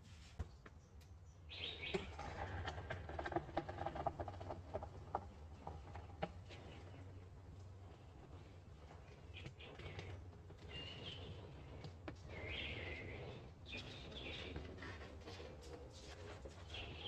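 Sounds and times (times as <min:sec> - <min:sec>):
birds chirping: 0:08.4 - 0:14.8, 0:16.6 - 0:17.0.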